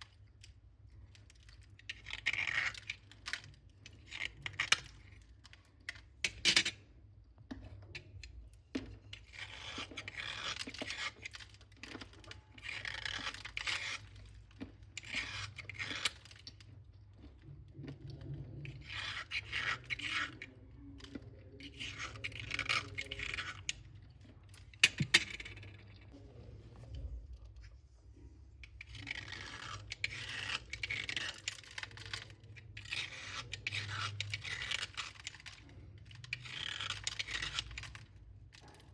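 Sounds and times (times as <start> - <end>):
slate pencils crunching: 18.7 - 23.8, 28.6 - 38.8.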